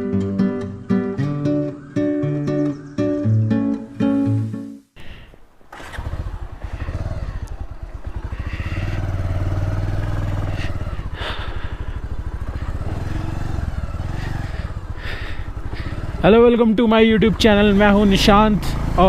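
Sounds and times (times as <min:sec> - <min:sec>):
motorcycle engine running: 0:05.6 - 0:19.0.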